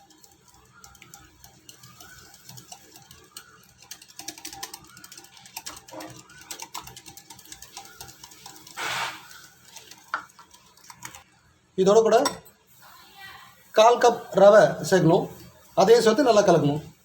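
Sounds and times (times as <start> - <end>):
whisk tapping a bowl: 0.0 - 11.2.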